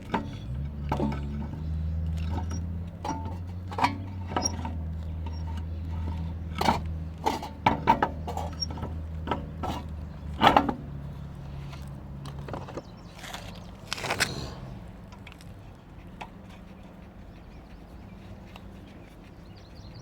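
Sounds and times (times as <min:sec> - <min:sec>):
hand tools clicking and knocking: 0:00.0 - 0:14.4
steady low hum: 0:05.0 - 0:20.0.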